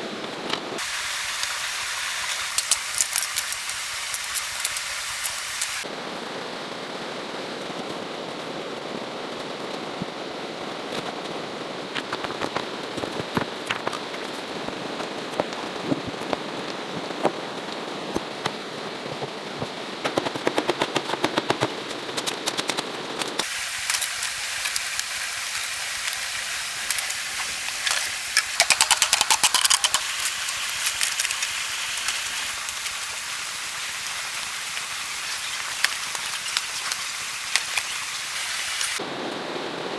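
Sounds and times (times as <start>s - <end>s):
steady rain: 0.0s - 21.8s, 22.8s - 39.9s
rapid sharp clicking: 20.0s - 39.0s.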